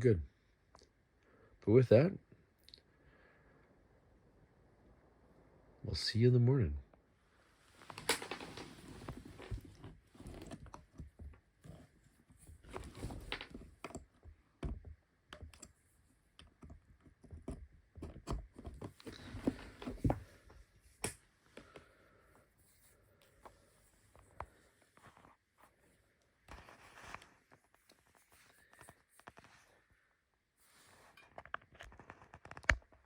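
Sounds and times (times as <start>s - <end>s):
soft rustling: 7.4s - 14.4s, 18.9s - 31.2s
small clicks and knocks: 7.9s - 21.8s, 31.1s - 33.0s.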